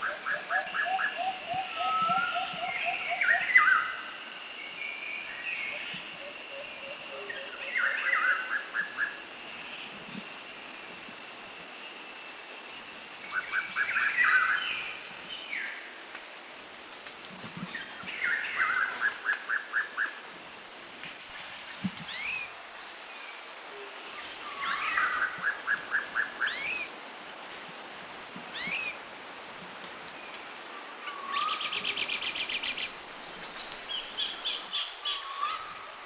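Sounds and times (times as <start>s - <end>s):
steady background hiss: 0.0s - 36.0s
birds singing: 31.0s - 36.0s.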